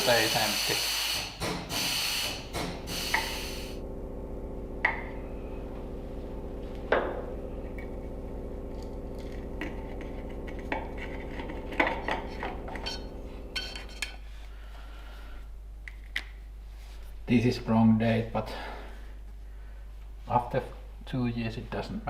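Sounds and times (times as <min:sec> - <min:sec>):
motor humming: 0:00.0 - 0:15.2.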